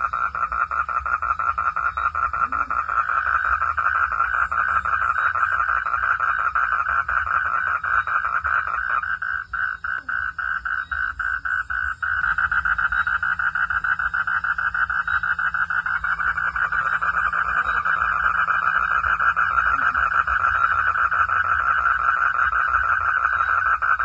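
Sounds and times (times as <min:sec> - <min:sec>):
frogs calling in pulsing trill: 0:00.0 - 0:24.0.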